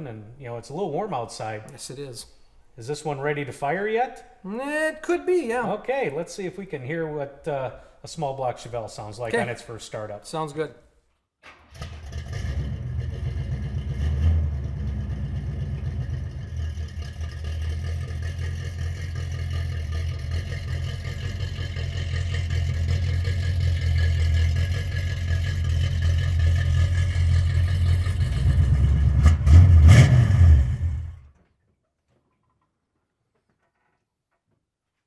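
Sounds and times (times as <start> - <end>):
car engine idling and revving: 11.8 - 31.3.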